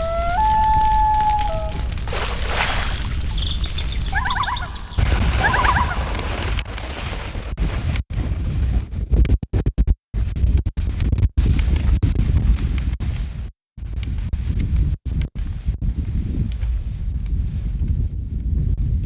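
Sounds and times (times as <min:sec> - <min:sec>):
small bird chirping: 0:00.0 - 0:06.1
wind buffeting microphone: 0:00.0 - 0:07.7, 0:14.1 - 0:19.0.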